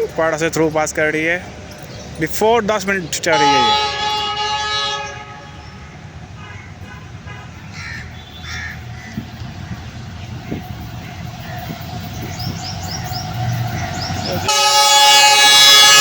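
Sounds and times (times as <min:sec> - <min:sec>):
diesel locomotive rumble: 0:00.0 - 0:16.0
locomotive horn chord: 0:03.2 - 0:07.6, 0:12.9 - 0:16.0.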